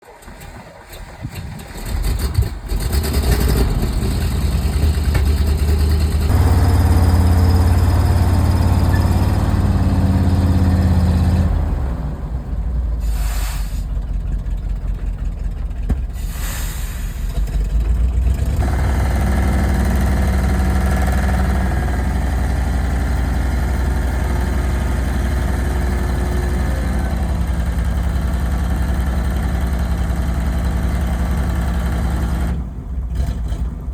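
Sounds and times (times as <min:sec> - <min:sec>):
truck engine starting and idling: 0:00.0 - 0:33.9
short hisses: 0:13.0 - 0:14.0, 0:16.1 - 0:17.4.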